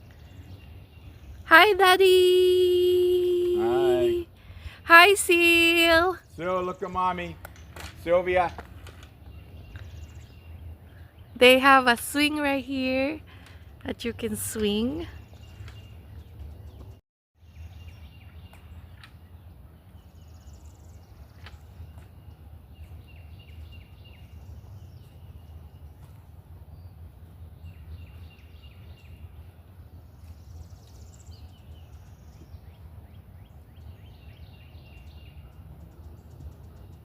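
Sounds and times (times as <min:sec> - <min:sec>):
birds chirping trills: 0:00.0 - 0:37.0.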